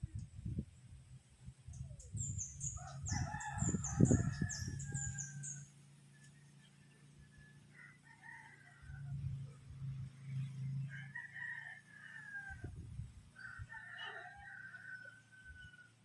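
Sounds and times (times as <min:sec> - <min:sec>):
wind gusting on microphone: 0:00.0 - 0:05.6, 0:12.5 - 0:13.7
roosters crowing: 0:02.6 - 0:16.0.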